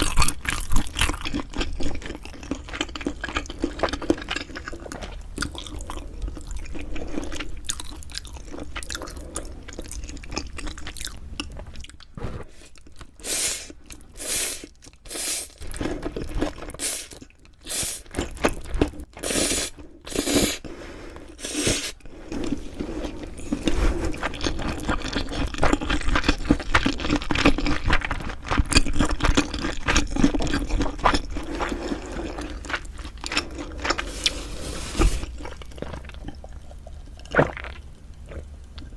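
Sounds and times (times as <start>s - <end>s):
crunchy chewing: 0.0s - 14.2s, 21.3s - 38.9s.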